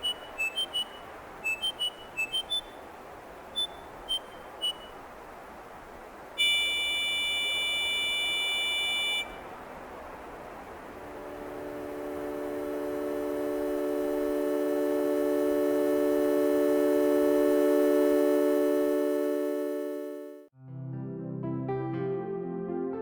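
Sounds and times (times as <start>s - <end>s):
steady electronic tone: 11.0s - 20.4s.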